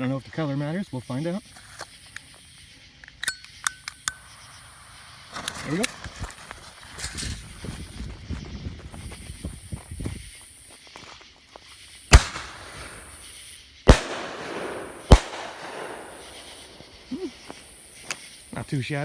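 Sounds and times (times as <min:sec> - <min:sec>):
firework hiss: 0:11.8 - 0:19.0
firework shell bangs: 0:12.1 - 0:13.3, 0:13.9 - 0:18.3.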